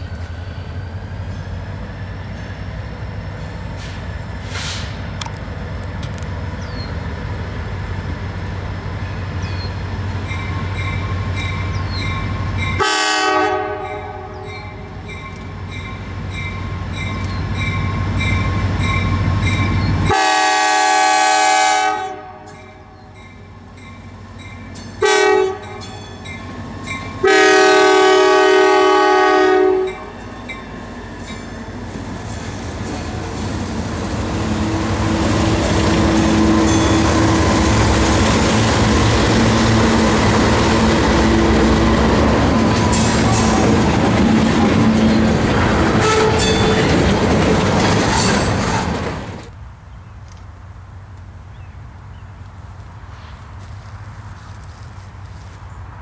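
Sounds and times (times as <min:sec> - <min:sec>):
train rumble: 0:00.0 - 0:56.0
locomotive air horn blasts: 0:12.7 - 0:15.2, 0:20.1 - 0:23.0, 0:25.0 - 0:26.0, 0:27.2 - 0:30.2, 0:34.4 - 0:38.3, 0:45.9 - 0:46.8.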